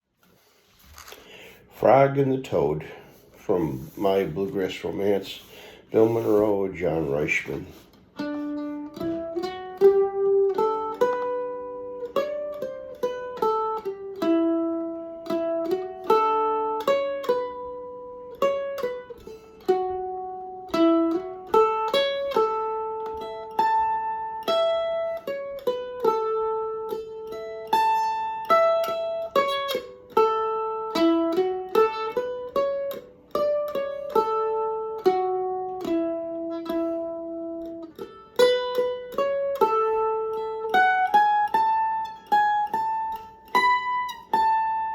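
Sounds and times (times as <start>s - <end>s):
mandolin picking a bluegrass melody: 0.2s - 44.9s.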